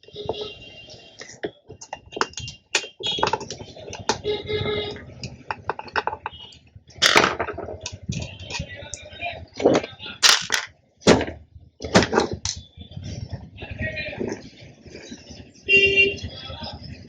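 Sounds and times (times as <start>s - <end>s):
hand tools clicking and tapping: 1.2s - 10.7s.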